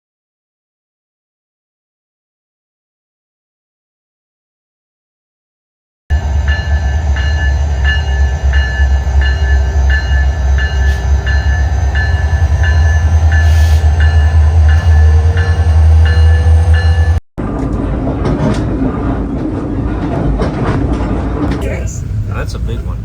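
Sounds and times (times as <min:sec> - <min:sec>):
locomotive bell ringing: 0:06.1 - 0:17.2
diesel locomotive rumbling: 0:06.1 - 0:23.0.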